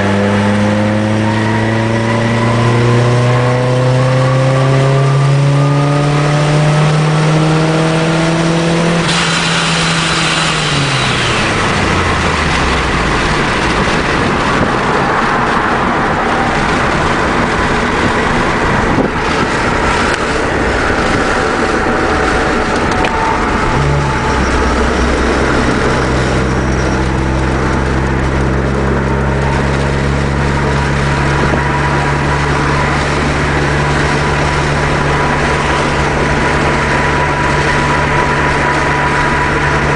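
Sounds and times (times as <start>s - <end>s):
car engine revving: 0.0s - 39.9s
high falling whine: 0.0s - 39.9s
road noise: 0.0s - 39.9s.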